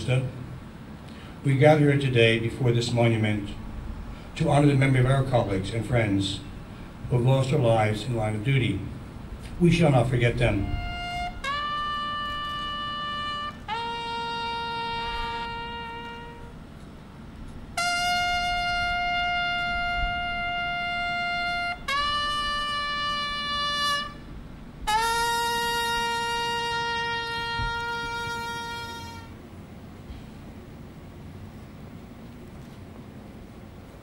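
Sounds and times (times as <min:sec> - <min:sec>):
trumpet playing long notes: 0:09.8 - 0:16.8, 0:17.7 - 0:29.5.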